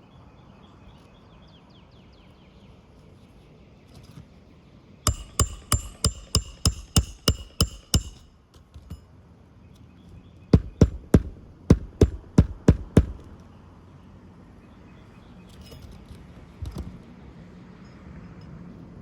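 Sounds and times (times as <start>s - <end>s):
hammer strikes on shingle roof: 5.1s - 8.4s, 10.6s - 13.4s.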